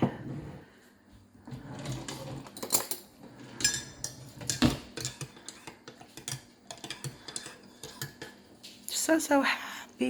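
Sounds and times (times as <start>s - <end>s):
dishes and cutlery clattering: 1.5s - 8.8s.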